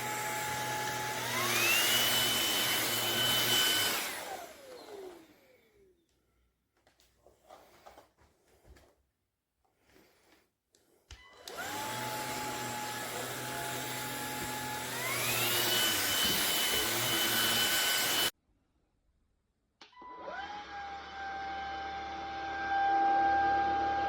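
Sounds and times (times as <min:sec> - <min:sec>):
vacuum cleaner whining: 0:00.0 - 0:06.2, 0:11.1 - 0:18.3, 0:20.2 - 0:24.0.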